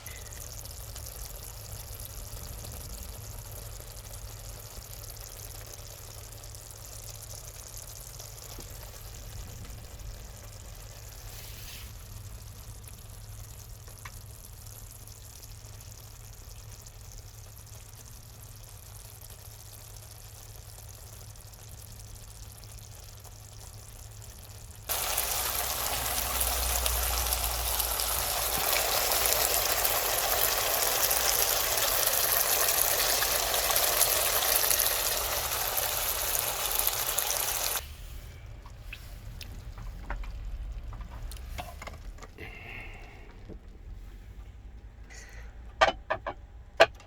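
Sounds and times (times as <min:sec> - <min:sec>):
low steady hum: 0:00.0 - 0:47.0
water running in a stream: 0:24.5 - 0:37.8.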